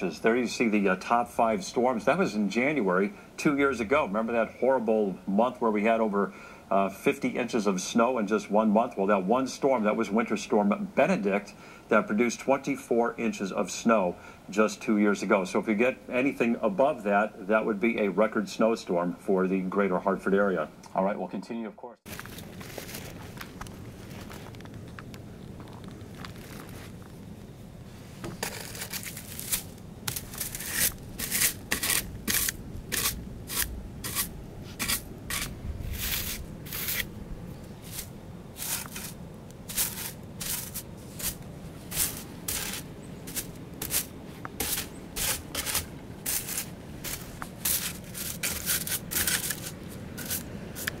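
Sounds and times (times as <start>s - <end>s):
low steady hum: 0.0s - 51.0s
footsteps crunching in snow: 22.1s - 51.0s.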